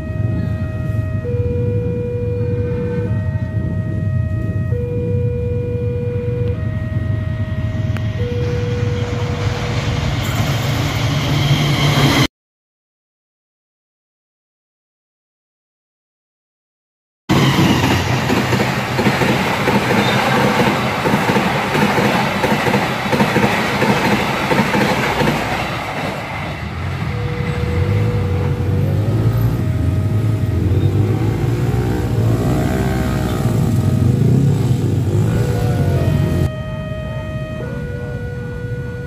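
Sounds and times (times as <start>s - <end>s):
train rumbling past on rails: 2.4s - 5.2s, 6.3s - 12.3s, 17.3s - 36.5s
steady and rising-falling tones: 6.6s - 12.3s
motorcycle and car engines humming: 26.5s - 38.7s.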